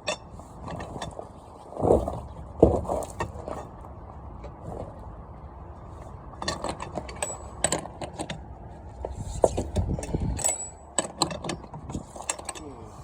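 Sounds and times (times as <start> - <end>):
high metallic rings: 10.0 - 11.1.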